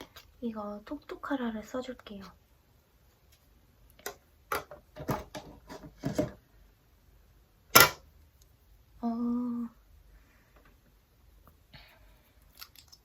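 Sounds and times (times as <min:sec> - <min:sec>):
sharp plastic snap: 0:07.7 - 0:08.1.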